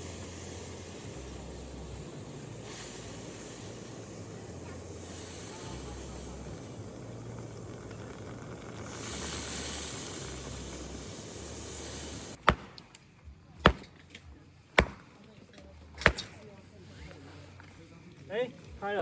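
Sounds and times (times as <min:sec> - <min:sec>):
steady rushing hiss: 0:00.0 - 0:13.0, 0:14.8 - 0:15.1
blade striking firewood: 0:12.4 - 0:13.0, 0:13.6 - 0:14.1, 0:14.8 - 0:15.2, 0:16.0 - 0:16.5.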